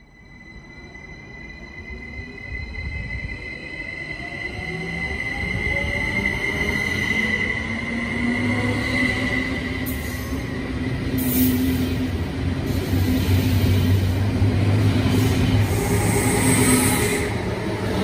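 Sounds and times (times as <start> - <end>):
train wheels rumbling on rails: 4.1 - 18.0.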